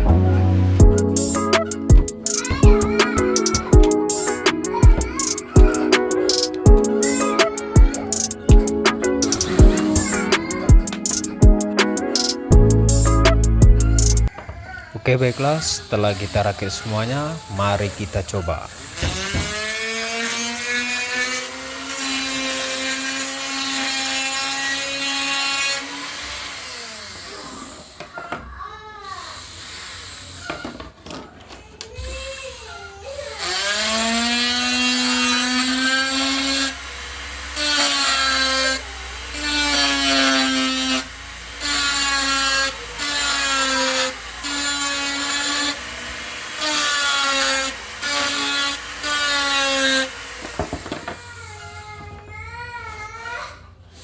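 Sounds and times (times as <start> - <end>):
rotary tool motor whining: 1.6 - 11.3, 13.9 - 28.3, 32.0 - 51.8.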